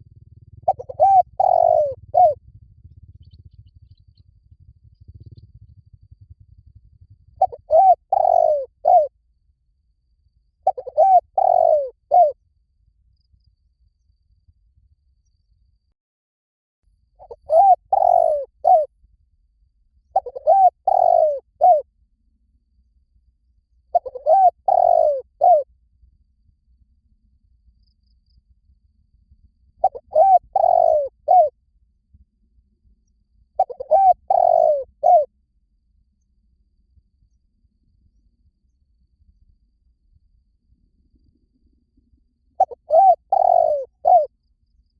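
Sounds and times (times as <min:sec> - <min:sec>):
dove cooing: 0:00.3 - 0:03.1, 0:04.6 - 0:09.1, 0:10.6 - 0:12.4, 0:17.2 - 0:18.9, 0:20.1 - 0:21.8, 0:23.9 - 0:25.7, 0:29.8 - 0:31.5, 0:33.6 - 0:35.3, 0:42.6 - 0:44.3.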